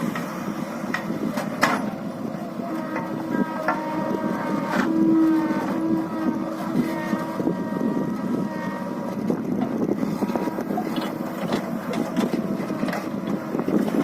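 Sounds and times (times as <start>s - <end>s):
diesel engine running: 0.0s - 14.0s
knocks and clatter: 9.6s - 14.0s.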